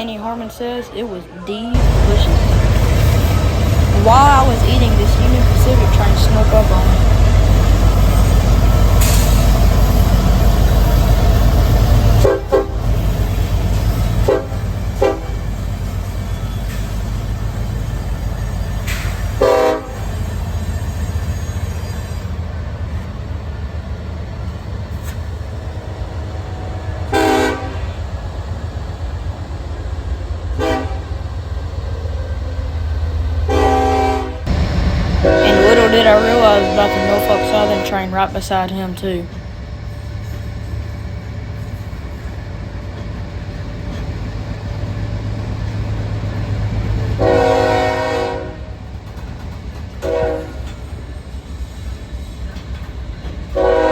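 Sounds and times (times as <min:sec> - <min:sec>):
diesel locomotive engine rumbling: 0:00.0 - 0:53.9
locomotive air horn blasts: 0:12.2 - 0:13.0, 0:14.2 - 0:15.5, 0:19.3 - 0:20.1, 0:27.1 - 0:28.0, 0:30.6 - 0:31.2, 0:33.5 - 0:34.5, 0:35.2 - 0:38.2, 0:47.2 - 0:48.8, 0:50.0 - 0:50.7, 0:53.6 - 0:53.9.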